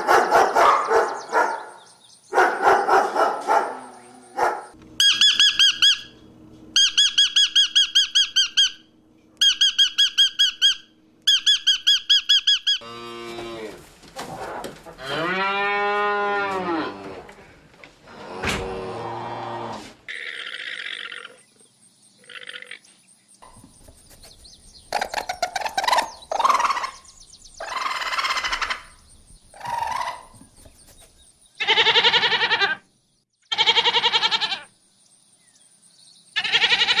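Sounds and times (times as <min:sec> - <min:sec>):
goat bleating: 0:31.6 - 0:32.8, 0:33.5 - 0:34.7, 0:36.4 - 0:37.0.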